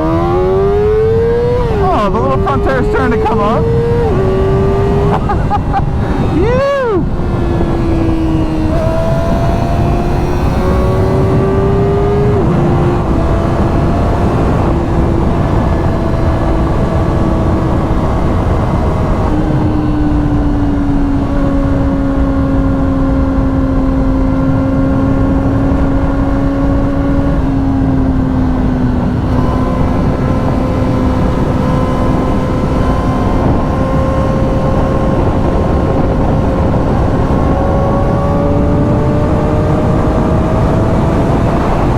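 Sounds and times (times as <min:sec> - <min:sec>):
motorcycle engine running: 0:00.0 - 0:41.9
wind rush on microphone: 0:00.0 - 0:41.9.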